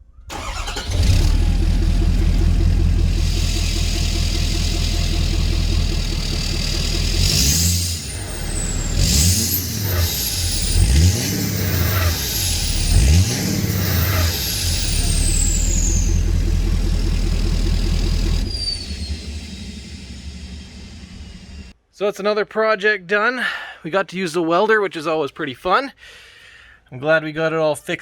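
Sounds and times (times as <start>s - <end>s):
diesel truck engine idling and revving: 0.3s - 21.7s.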